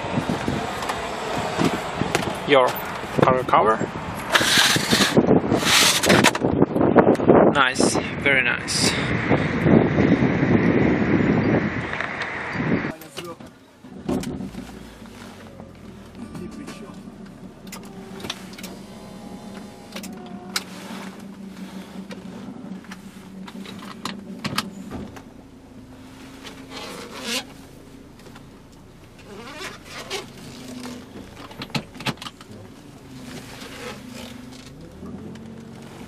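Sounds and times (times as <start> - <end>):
steady low hum: 15.7 - 29.2.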